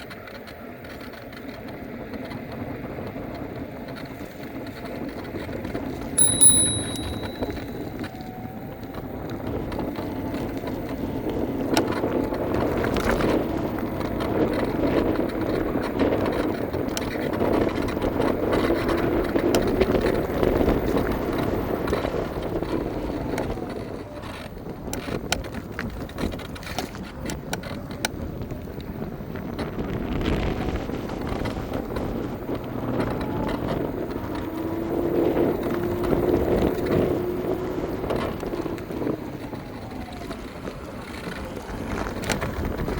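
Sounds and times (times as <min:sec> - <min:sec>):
short high beep: 0:06.2 - 0:07.8
scooter wheels rumbling on road: 0:07.8 - 0:42.9.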